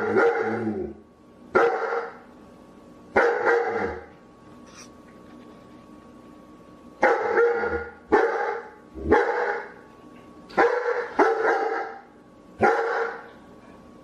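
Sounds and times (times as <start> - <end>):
dog barking: 0.0 - 0.6, 1.6 - 2.2, 3.2 - 4.0, 7.0 - 9.8, 10.6 - 12.0, 12.6 - 13.3.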